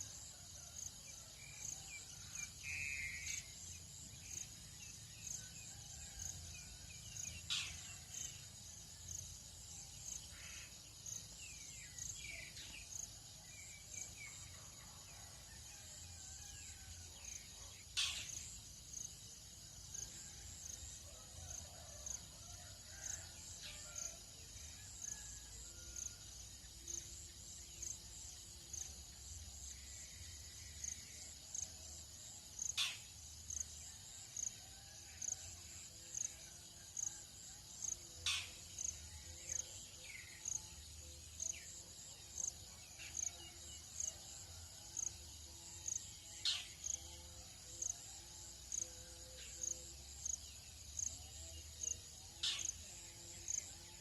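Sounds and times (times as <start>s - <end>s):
insect chirping: 0.0s - 54.0s
high-pitched insect hiss: 7.2s - 14.3s, 44.9s - 53.8s.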